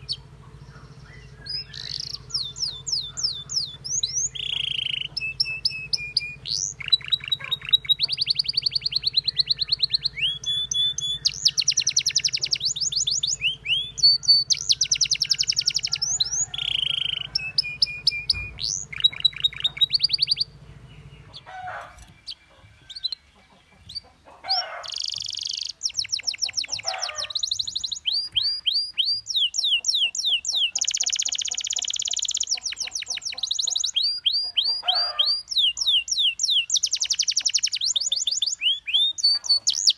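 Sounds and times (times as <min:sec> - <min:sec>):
steady low hum: 0:00.0 - 0:24.0
canary singing trills: 0:00.0 - 0:39.9.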